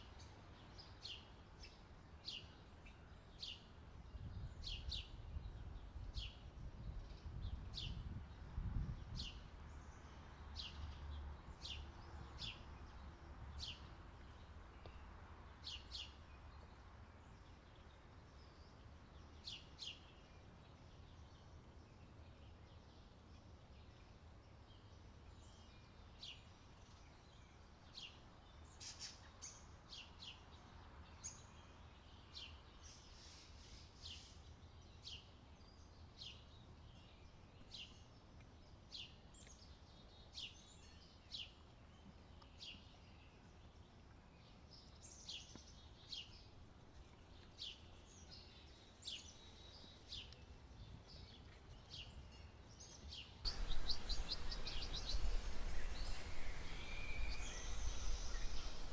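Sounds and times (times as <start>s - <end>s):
low rumble of wind: 4.0s - 14.8s, 53.5s - 58.9s
faint bird chirps: 53.5s - 58.9s.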